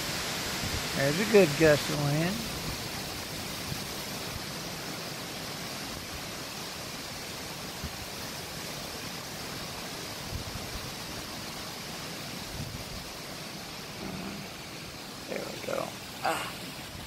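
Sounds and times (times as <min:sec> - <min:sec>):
strong gusting wind: 0:12.4 - 0:13.1.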